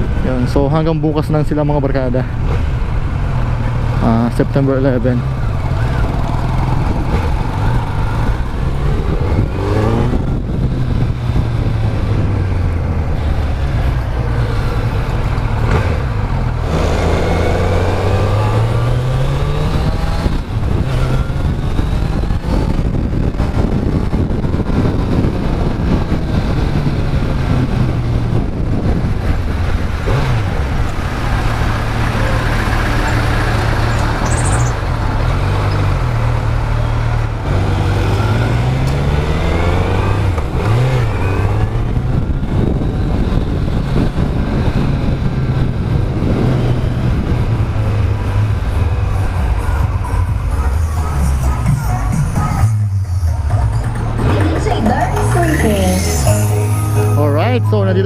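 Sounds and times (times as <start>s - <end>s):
wind and road noise: 0.0s - 58.0s
motorcycle engine running: 2.3s - 38.1s.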